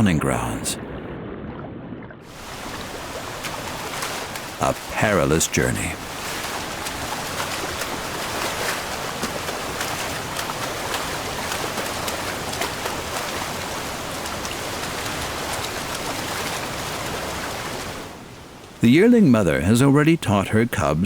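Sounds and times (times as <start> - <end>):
small water splashes: 2.2 - 18.8
shallow river water rushing: 2.2 - 21.0.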